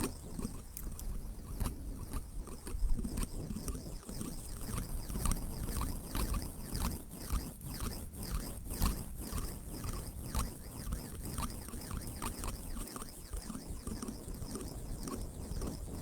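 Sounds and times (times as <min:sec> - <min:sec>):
water lapping and trickling: 0:09.3 - 0:16.0.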